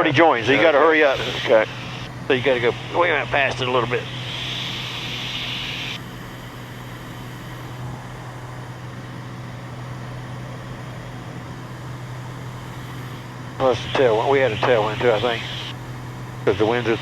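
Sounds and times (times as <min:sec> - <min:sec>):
aircraft engine and propeller droning: 0:00.0 - 0:17.0
hiss: 0:01.1 - 0:06.0.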